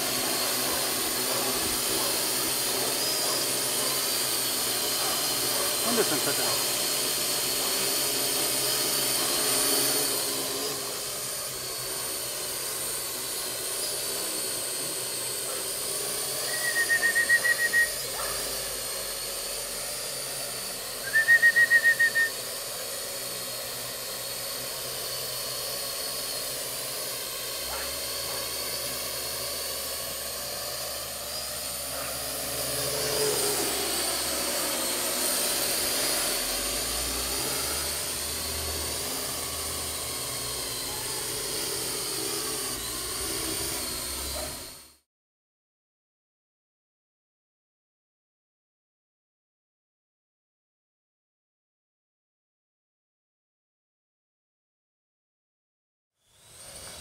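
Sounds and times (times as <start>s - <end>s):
drone propellers whirring: 0.0s - 45.0s, 56.2s - 57.0s.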